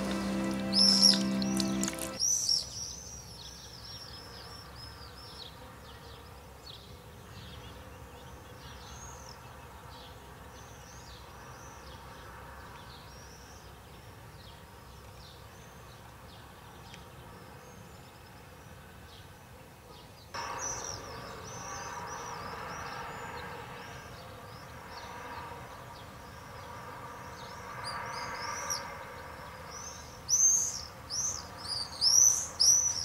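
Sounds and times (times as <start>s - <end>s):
birds chirping: 0.0s - 3.3s, 29.7s - 33.0s.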